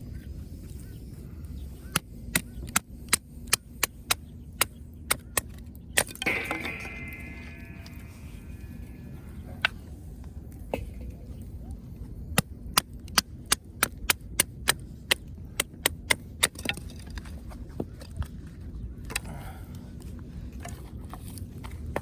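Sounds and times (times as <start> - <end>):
sharp wooden knocks and cracks: 12.4 - 17.5.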